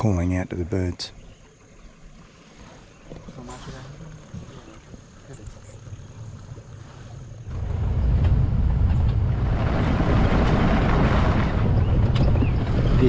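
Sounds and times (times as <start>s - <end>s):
vehicle rumbling: 3.2s - 13.0s
wind buffeting microphone: 3.3s - 13.0s.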